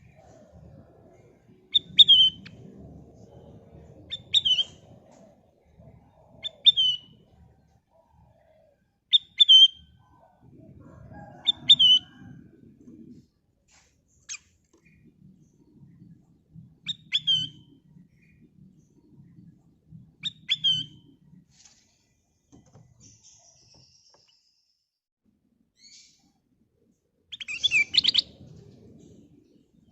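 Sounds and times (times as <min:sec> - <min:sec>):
faint low rumble: 0:00.0 - 0:09.1, 0:09.8 - 0:22.2, 0:26.3 - 0:29.9
bird chirping call: 0:01.7 - 0:02.7, 0:16.8 - 0:18.4, 0:27.3 - 0:28.5.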